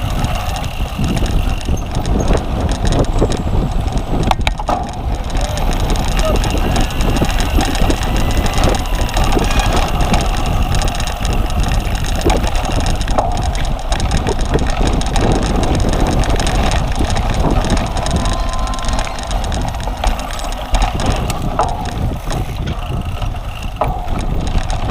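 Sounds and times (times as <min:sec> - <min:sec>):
bike knocks and rattles: 0:00.0 - 0:24.9
wind rumbling on microphone: 0:00.0 - 0:24.9.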